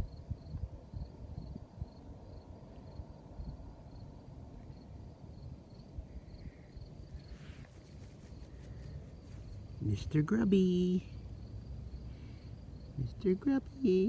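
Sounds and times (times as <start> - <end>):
cricket chirping: 0.0 - 14.0
brief rustle: 7.1 - 9.6.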